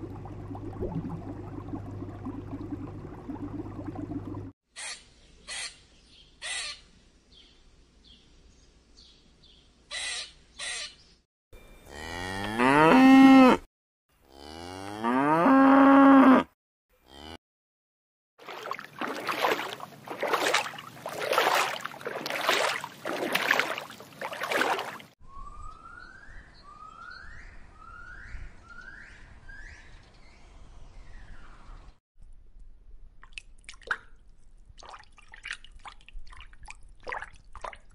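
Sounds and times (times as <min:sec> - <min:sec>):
cow mooing: 0:11.9 - 0:13.6, 0:14.2 - 0:17.4.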